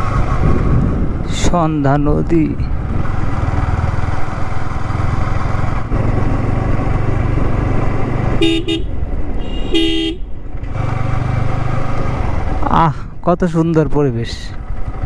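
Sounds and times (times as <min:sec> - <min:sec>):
motorcycle engine running: 0:02.6 - 0:12.7, 0:14.5 - 0:15.0
horn toots: 0:08.4 - 0:10.3.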